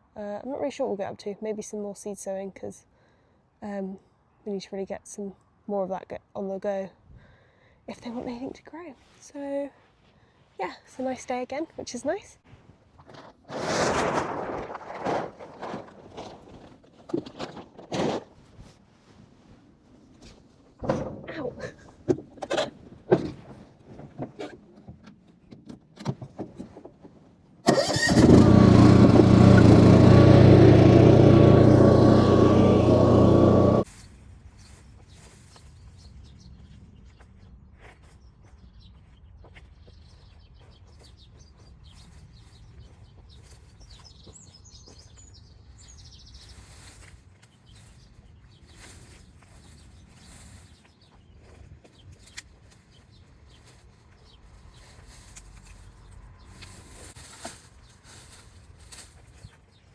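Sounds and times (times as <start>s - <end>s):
motor engine running: 27.7s - 33.8s.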